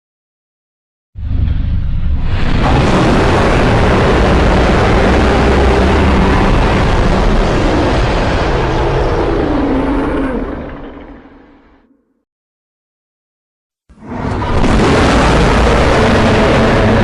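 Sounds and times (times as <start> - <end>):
monster roar: 2.3 - 11.9, 14.0 - 17.0.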